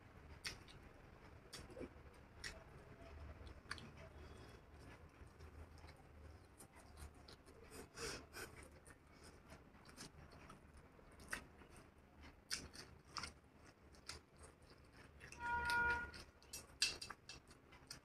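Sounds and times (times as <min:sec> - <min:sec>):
person chewing noodles: 0:00.2 - 0:18.0.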